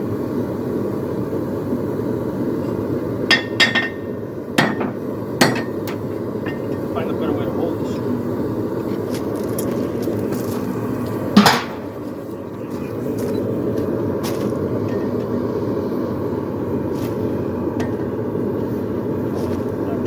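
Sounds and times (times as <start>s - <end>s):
metal clank ringing: 11.4s - 11.9s.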